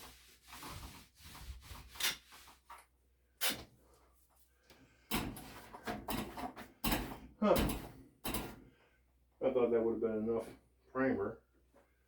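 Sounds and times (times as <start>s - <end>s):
paint roller rubbing on drywall: 0.0s - 2.8s.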